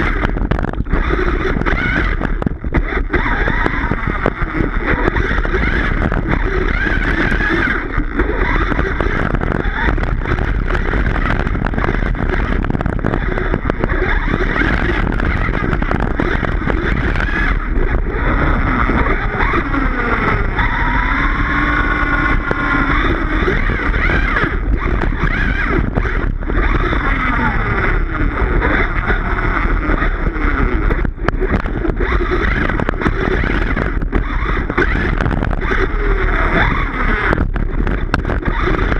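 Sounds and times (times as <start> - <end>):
electric motor whine: 0.0 - 38.9
low rumble: 0.0 - 38.9.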